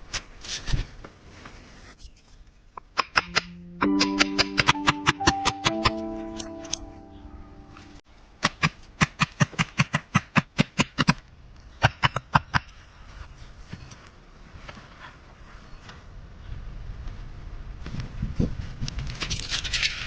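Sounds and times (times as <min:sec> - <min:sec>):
guitar music: 0:03.3 - 0:08.0.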